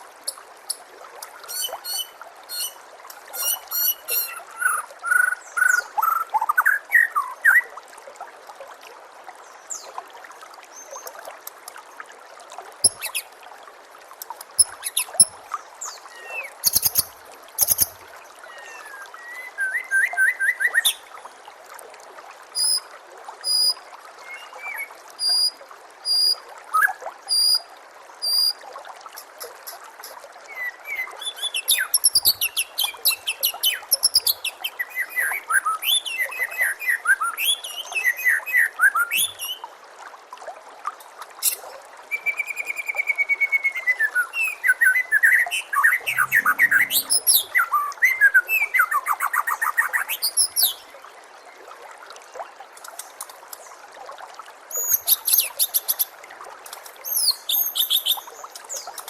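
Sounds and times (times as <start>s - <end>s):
trickling water: 0.0s - 59.0s
bird singing whistled notes: 42.2s - 48.8s.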